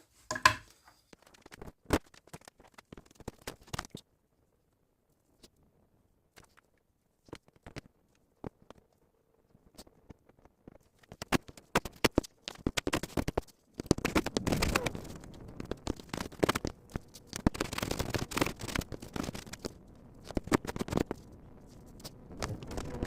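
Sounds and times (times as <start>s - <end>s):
tool and wood clicks: 0.3s - 0.7s.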